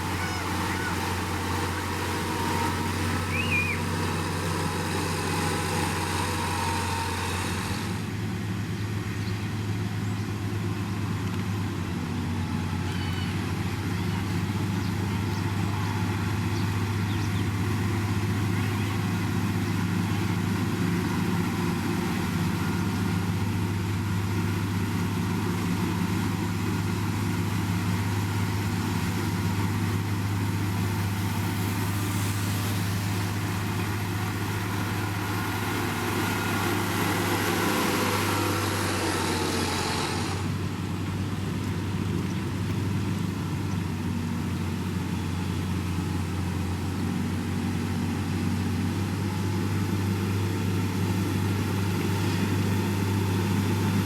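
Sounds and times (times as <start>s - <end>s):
diesel engine of heavy machinery: 0.0s - 54.0s
hissing rushing noise: 29.7s - 40.7s.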